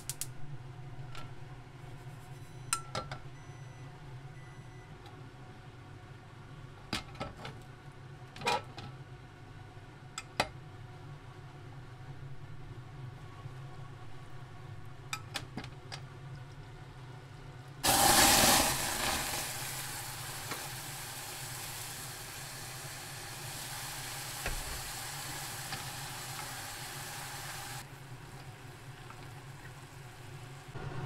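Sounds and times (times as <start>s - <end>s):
food sizzling in hot pan: 17.8s - 31.0s.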